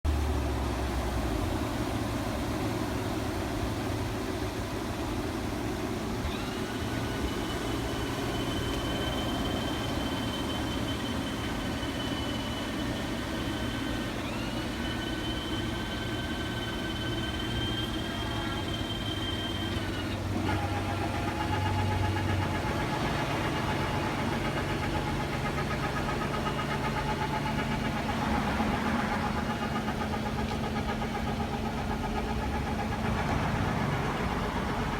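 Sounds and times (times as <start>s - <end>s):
truck engine idling: 0.0s - 34.9s
electric motor whining: 6.0s - 34.9s.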